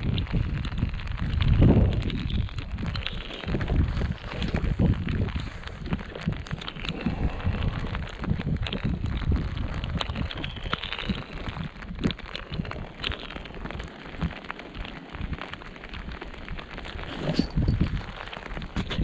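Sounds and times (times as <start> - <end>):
rain pattering on jacket: 0.0 - 19.0
fishing rod and reel handling: 16.8 - 18.0.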